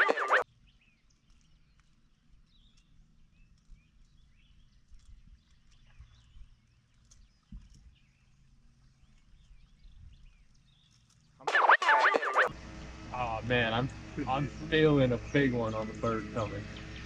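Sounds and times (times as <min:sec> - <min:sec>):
songbird chirps: 0:00.0 - 0:11.5, 0:12.6 - 0:17.0
low steady rumble: 0:12.5 - 0:17.0.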